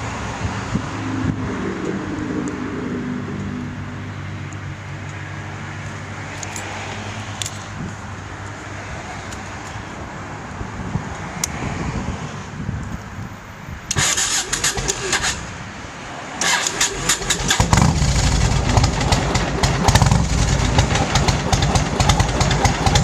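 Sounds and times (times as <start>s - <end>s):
motorcycle engine running: 16.5s - 23.0s.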